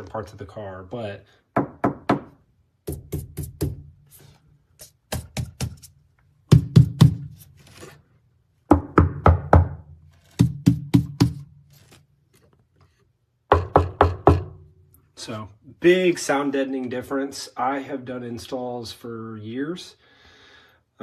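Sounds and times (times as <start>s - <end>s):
knuckle knocks on sheet metal: 6.5s - 7.3s, 10.4s - 11.5s.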